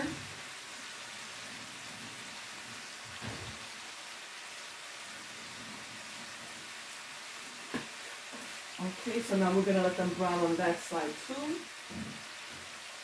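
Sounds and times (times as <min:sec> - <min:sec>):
pork chops sizzling in a pan: 0:00.0 - 0:13.0.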